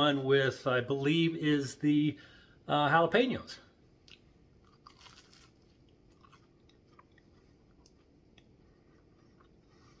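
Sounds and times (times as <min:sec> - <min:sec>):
chewing crispy food: 0:04.0 - 0:10.0.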